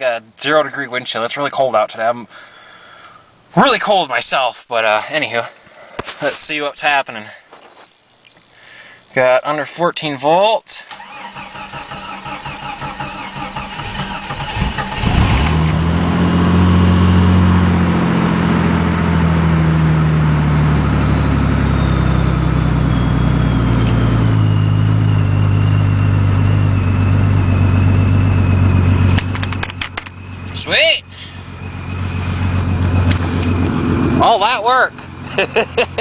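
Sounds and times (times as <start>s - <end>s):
engine cranking on starter: 10.9s - 15.9s
engine running at fast idle: 12.7s - 36.0s.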